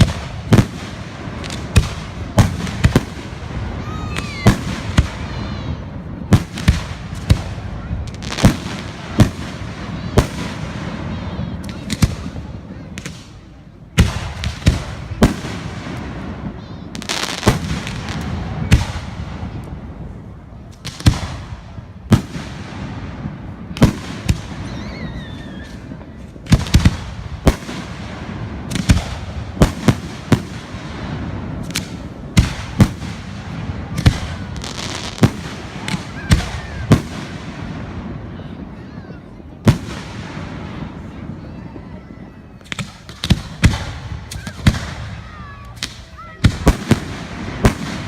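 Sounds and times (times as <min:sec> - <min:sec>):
firework bangs: 0:00.0 - 0:48.0
falling firework whistle: 0:03.8 - 0:05.5, 0:24.3 - 0:26.0.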